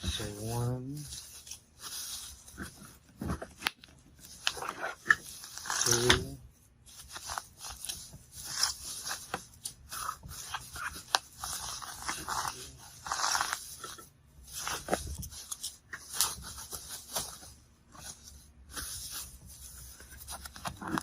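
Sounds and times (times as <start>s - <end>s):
bubble wrap rustling and crinkling: 0.0s - 21.0s.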